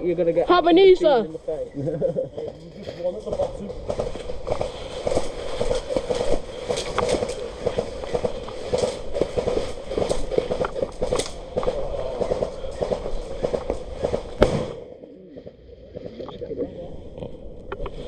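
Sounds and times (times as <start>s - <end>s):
airsoft guns firing: 3.3s - 14.9s.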